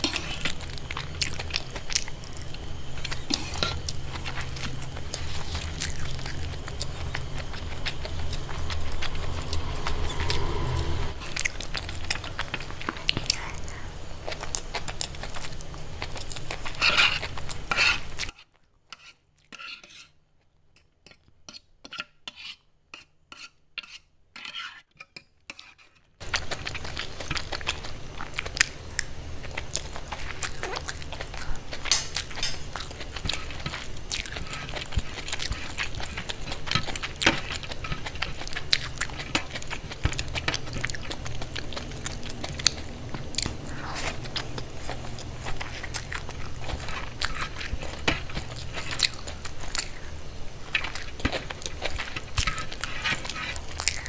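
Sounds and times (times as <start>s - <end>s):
steady low hum: 0.0s - 18.2s, 26.2s - 54.0s
utensils clinking on dishes: 31.8s - 32.8s.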